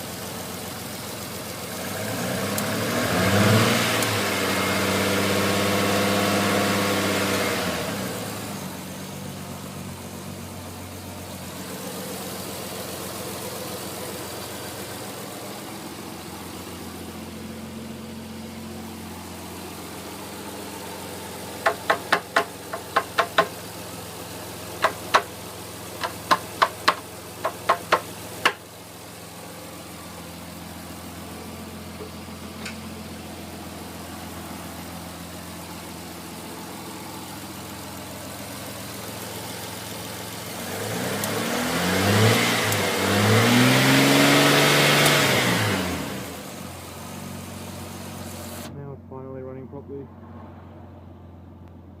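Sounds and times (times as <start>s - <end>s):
car engine idling: 0.0s - 52.0s
sharp clicks or knocks: 24.8s - 25.3s, 26.0s - 28.6s.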